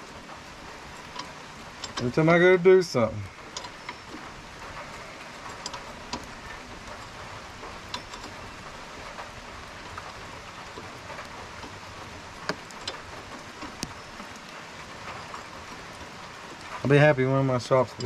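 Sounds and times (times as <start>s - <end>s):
rain on a roof: 0.0s - 18.0s
light ticks: 12.4s - 16.9s.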